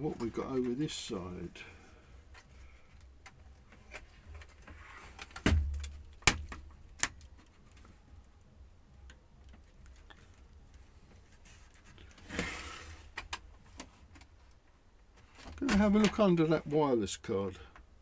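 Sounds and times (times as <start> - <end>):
dull knock: 5.5 - 6.6.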